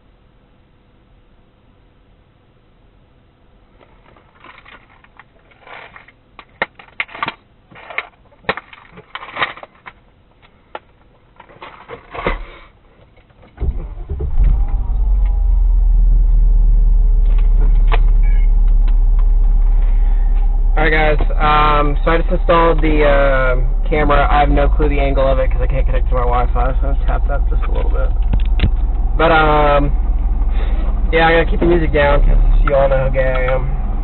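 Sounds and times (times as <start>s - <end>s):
handling clicks and rustling: 3.8s - 13.6s
car engine starting and idling: 13.4s - 34.0s.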